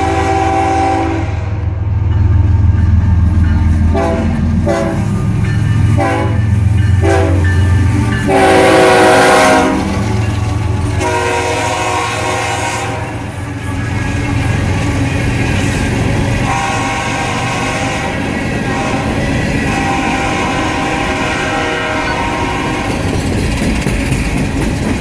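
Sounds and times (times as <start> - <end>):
locomotive air horn: 0.0 - 1.7, 3.9 - 5.1, 6.0 - 6.4, 7.0 - 7.5, 8.2 - 10.1, 10.9 - 13.4, 16.4 - 23.0
diesel locomotive rumble: 0.0 - 25.0.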